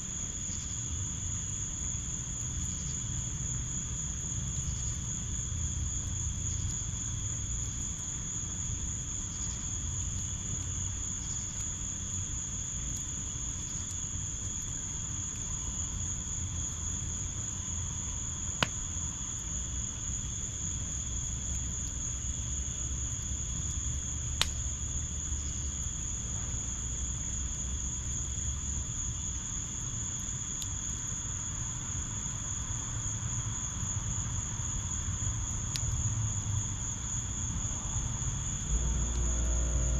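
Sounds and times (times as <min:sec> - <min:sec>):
crickets trilling: 0:00.0 - 0:39.9
fire popping: 0:06.8 - 0:32.0, 0:35.0 - 0:39.4
low rumble: 0:37.3 - 0:39.9.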